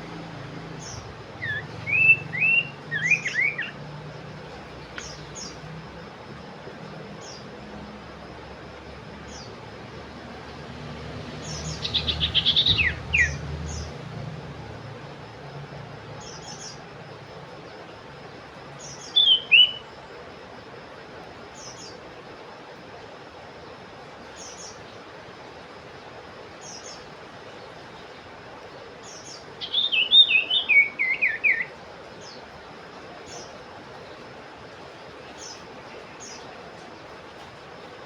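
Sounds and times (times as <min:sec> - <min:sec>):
bird fast trill and whistles: 0:00.8 - 0:03.8, 0:11.5 - 0:13.8, 0:18.9 - 0:19.9, 0:29.6 - 0:31.7.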